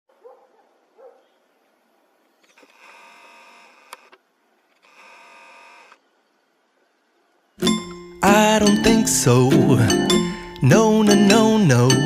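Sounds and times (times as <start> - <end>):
small electric motor whirring: 2.6 - 4.2, 4.8 - 6.0.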